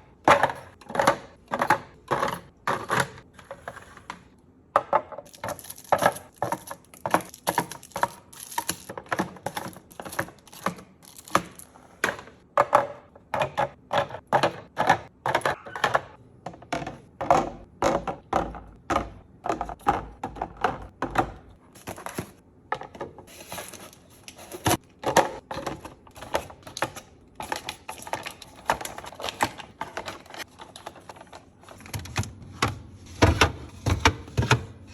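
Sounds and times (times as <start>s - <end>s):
kitchen items clicking and knocking: 0.0s - 34.9s.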